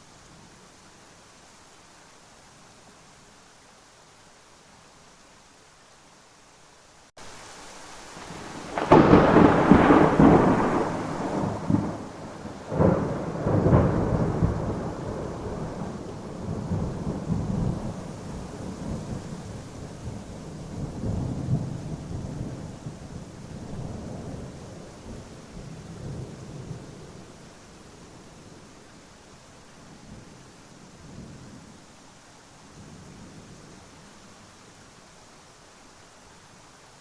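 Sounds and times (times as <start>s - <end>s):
rain hissing: 0.0s - 37.0s
thunder: 8.3s - 27.2s.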